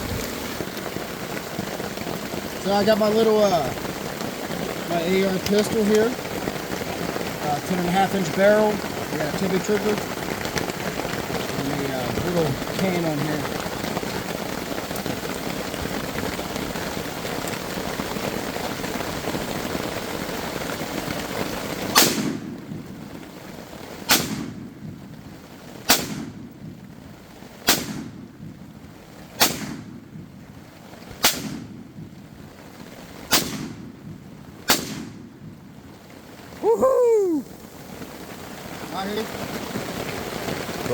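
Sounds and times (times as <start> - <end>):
rain hiss: 0.0 - 40.9
suppressed pistol shots: 22.0 - 22.4, 24.1 - 24.6, 25.9 - 26.4, 27.7 - 28.1, 29.4 - 29.9, 31.2 - 31.7, 33.3 - 33.8, 34.7 - 35.2.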